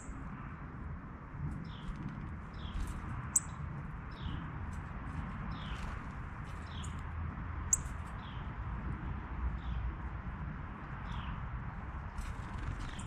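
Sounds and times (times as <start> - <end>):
small bird chirping: 0.0 - 0.2, 1.6 - 4.5, 5.5 - 7.0, 7.7 - 8.6, 12.1 - 13.0
low background rumble: 0.0 - 13.0.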